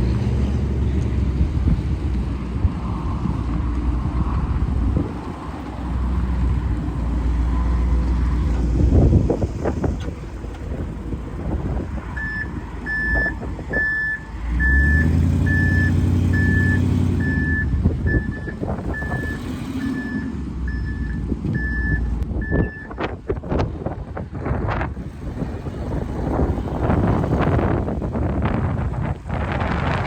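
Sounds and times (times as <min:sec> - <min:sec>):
truck engine running: 0:00.0 - 0:30.0
truck backup alarm beeping: 0:12.2 - 0:23.1.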